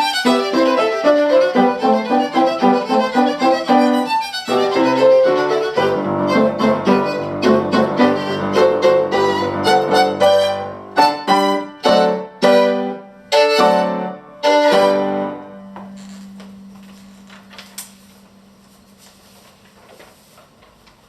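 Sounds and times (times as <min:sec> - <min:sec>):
violin and piano chords: 0:00.0 - 0:16.7.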